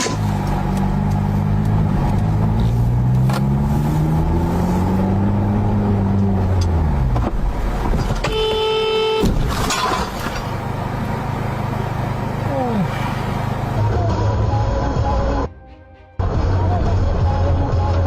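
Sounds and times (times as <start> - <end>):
car engine and road noise: 0.0 - 15.6, 16.2 - 18.0
car horn: 8.2 - 9.4.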